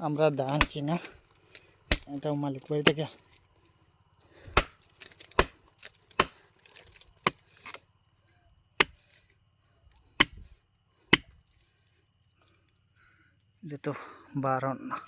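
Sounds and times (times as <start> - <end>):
blade chopping wood: 0.4 - 1.1, 1.9 - 2.1, 2.8 - 3.1, 4.5 - 6.4, 7.2 - 7.4, 8.8 - 9.1, 10.2 - 10.4, 11.1 - 11.4.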